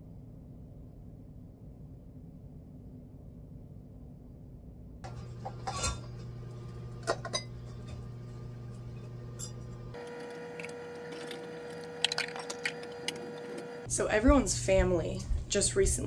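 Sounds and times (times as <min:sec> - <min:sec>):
low appliance hum: 0:00.0 - 0:16.0
dishes clinking on counter: 0:05.1 - 0:06.4, 0:07.0 - 0:08.1.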